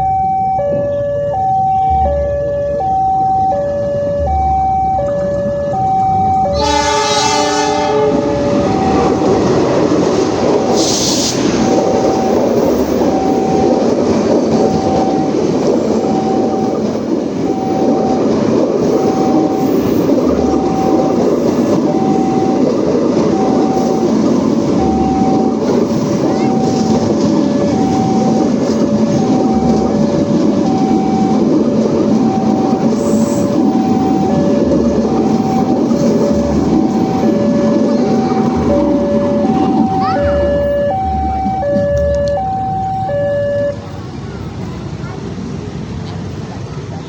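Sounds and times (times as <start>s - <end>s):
locomotive chime horn: 0.0s - 9.5s, 26.2s - 31.5s, 32.1s - 43.9s
two-tone crossing alarm: 0.0s - 44.0s
train rumbling past: 0.0s - 47.0s.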